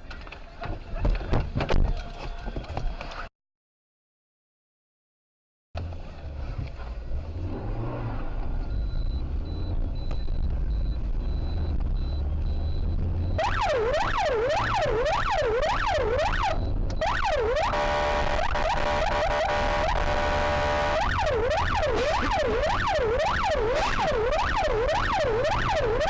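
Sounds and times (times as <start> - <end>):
vehicle rumble on the road: 5.8 - 26.0
emergency vehicle siren: 8.8 - 26.0.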